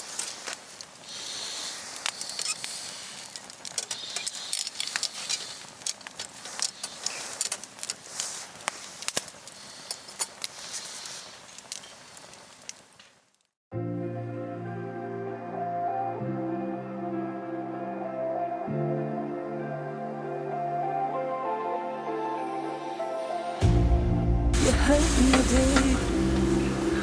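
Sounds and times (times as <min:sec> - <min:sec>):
wood fire crackling: 0:00.0 - 0:13.6, 0:24.6 - 0:27.0.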